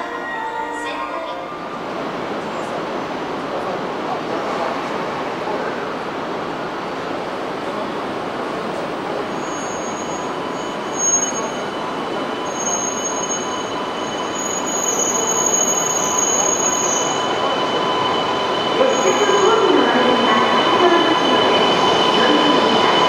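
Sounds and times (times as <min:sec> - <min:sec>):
train electrical whine: 0:08.6 - 0:23.0.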